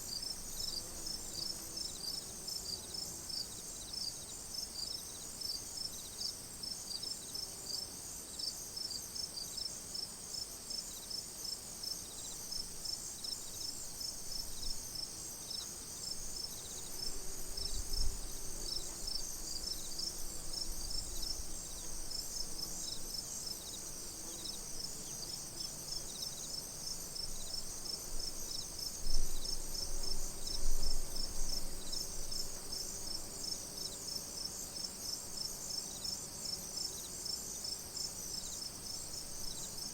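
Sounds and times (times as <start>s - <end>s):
crickets chirping: 8.4s - 39.9s.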